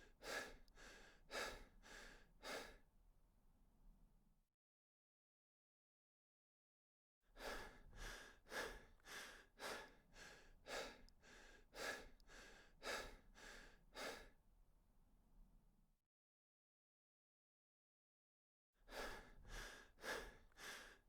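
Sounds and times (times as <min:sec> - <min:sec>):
person breathing hard: 0:00.2 - 0:02.8, 0:07.4 - 0:14.4, 0:18.9 - 0:21.0.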